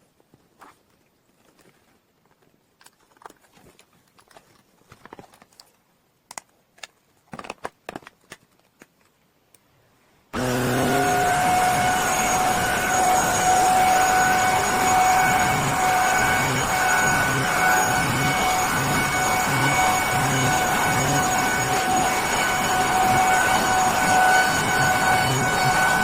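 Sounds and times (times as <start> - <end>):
handling clicks and knocks: 0.2 - 9.2
handheld vacuum whining motor: 10.4 - 26.0.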